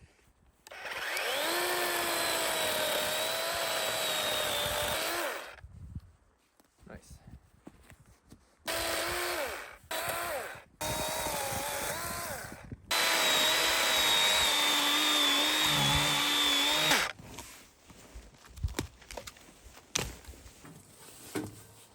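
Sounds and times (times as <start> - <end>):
chainsaw revving: 0.7 - 5.6, 8.7 - 17.2.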